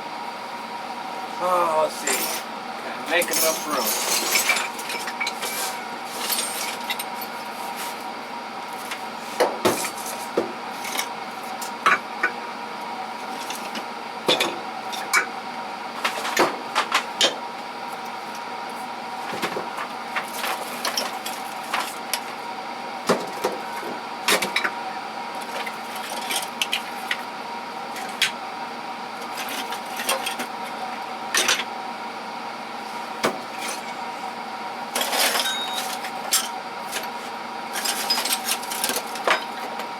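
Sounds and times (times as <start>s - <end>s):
metal tools clinking and clattering: 2.0s - 2.5s, 3.2s - 5.6s, 35.0s - 36.5s, 37.8s - 39.6s.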